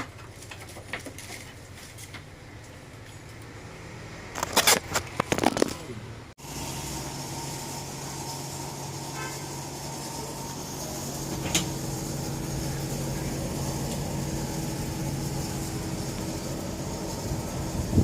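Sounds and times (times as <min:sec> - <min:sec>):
machine hum: 0:06.2 - 0:18.0.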